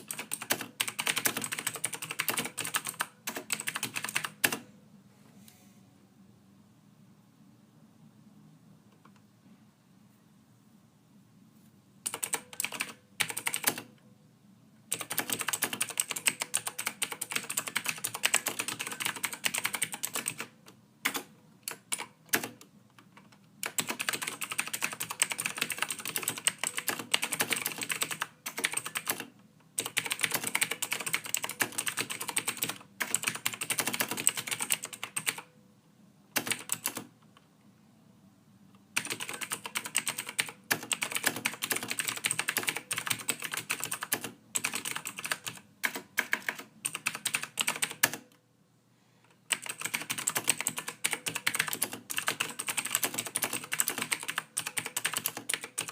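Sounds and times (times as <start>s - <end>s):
typing on computer keyboard: 0.0s - 4.7s, 12.0s - 13.9s, 14.9s - 35.5s, 36.3s - 37.1s, 39.0s - 48.4s, 49.5s - 55.9s.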